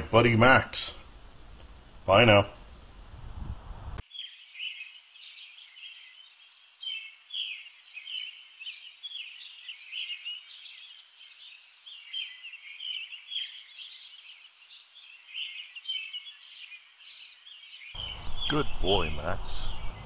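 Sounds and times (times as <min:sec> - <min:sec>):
small birds chirping: 0:04.0 - 0:20.0.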